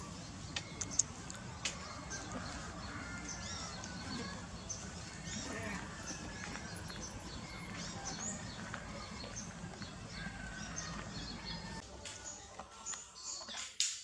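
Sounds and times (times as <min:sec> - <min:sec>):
small birds chirping: 0:00.0 - 0:13.8.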